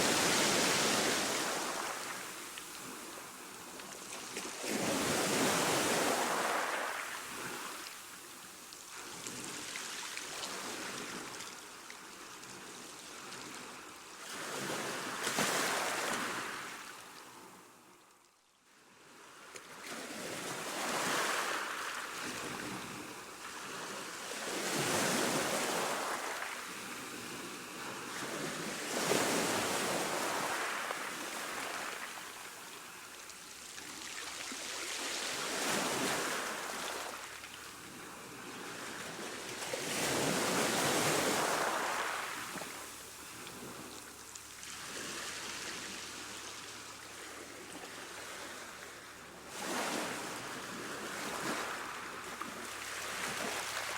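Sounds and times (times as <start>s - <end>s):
ocean waves breaking: 39.8s - 43.9s.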